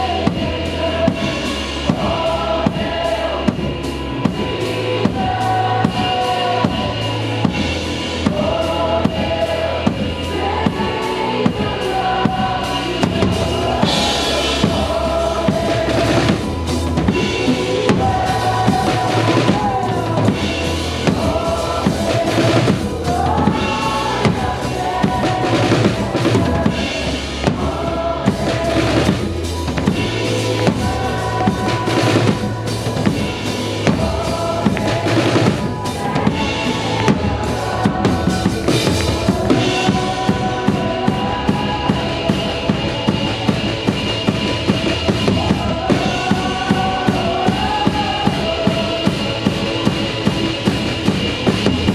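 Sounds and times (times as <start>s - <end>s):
band playing with singing: 0.0s - 51.9s
drum kit playing kick and snare: 0.0s - 51.9s.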